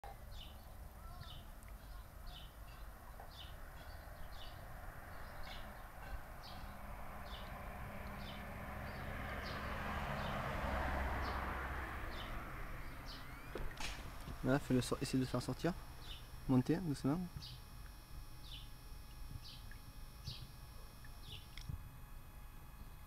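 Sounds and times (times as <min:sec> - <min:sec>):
steady background hiss: 0:10.7 - 0:22.9.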